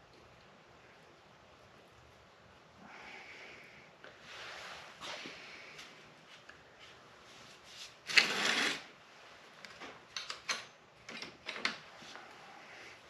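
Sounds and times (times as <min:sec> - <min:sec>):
tools rattling scrape: 0:08.1 - 0:08.9
tools clicking and clinking: 0:10.1 - 0:11.8.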